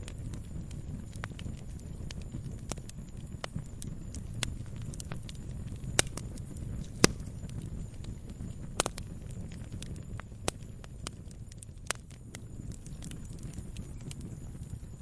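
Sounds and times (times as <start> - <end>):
campfire pops and snaps: 0.0 - 15.0
low rumble of flames: 0.0 - 15.0.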